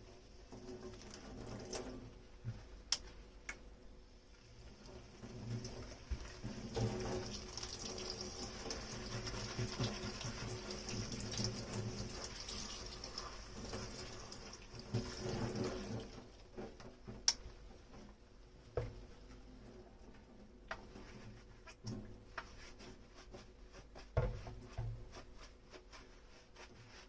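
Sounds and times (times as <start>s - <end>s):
tap water running into sink: 4.8s - 16.3s.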